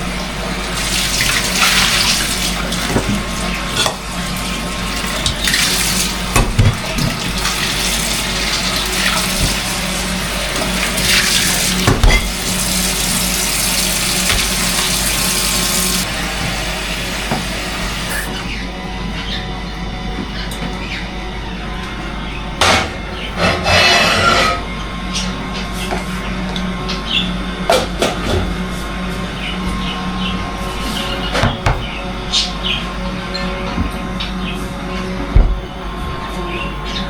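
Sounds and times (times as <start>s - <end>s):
tap water splashing into sink: 0.8s - 4.0s, 5.0s - 18.3s
pot knocking against sink: 6.3s - 7.7s, 10.6s - 15.8s.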